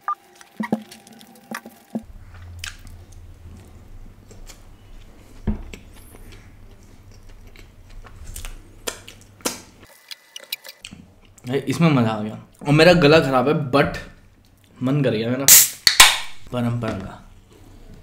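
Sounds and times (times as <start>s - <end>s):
low steady hum: 0.0s - 9.9s
person chewing food: 0.2s - 11.4s.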